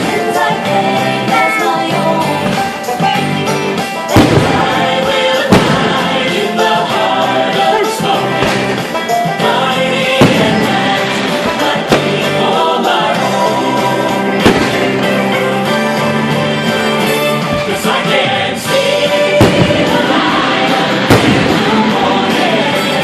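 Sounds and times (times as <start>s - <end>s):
song with choir-like singing: 0.0s - 23.0s
firework bangs: 3.8s - 23.0s.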